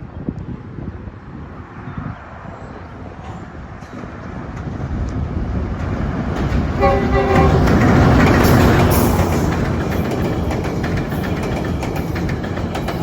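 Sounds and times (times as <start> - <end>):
diesel train rumbling: 3.1 - 13.0.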